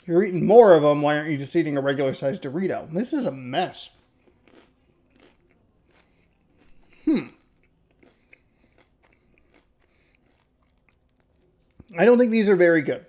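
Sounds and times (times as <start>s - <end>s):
chewing crunchy chips: 3.7s - 12.0s.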